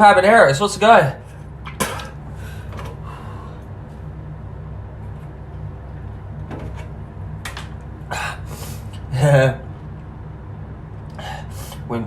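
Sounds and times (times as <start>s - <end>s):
low electrical hum: 0.0s - 12.0s
man breathing and sniffing: 2.3s - 3.8s, 8.1s - 9.1s, 11.1s - 11.9s.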